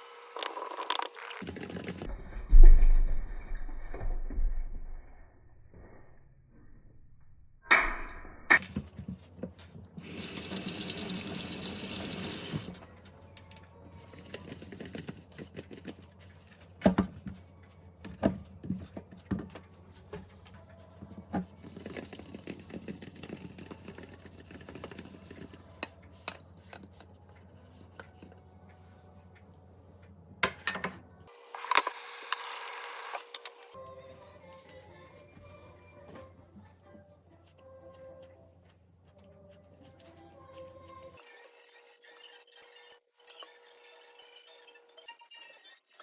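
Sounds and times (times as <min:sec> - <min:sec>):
water tap running: 0:10.0 - 0:12.8.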